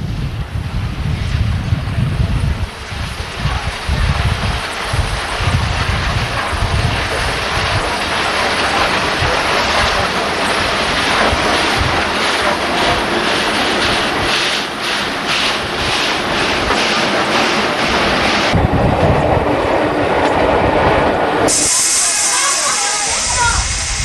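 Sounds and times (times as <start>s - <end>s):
wind buffeting microphone: 0.0s - 22.0s, 23.1s - 24.0s
train rumbling: 0.0s - 24.0s
wheels clacking over rail joints: 3.5s - 21.6s.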